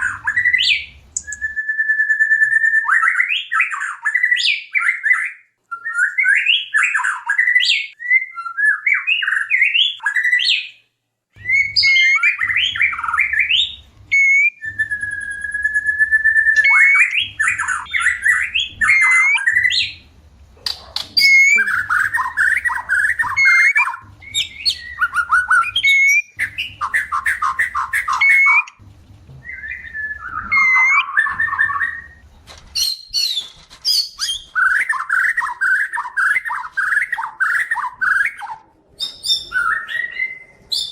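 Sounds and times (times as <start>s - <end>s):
bird singing whistles and trills: 0.0s - 10.8s, 11.4s - 20.0s, 20.7s - 28.8s, 29.4s - 32.2s, 32.8s - 40.9s.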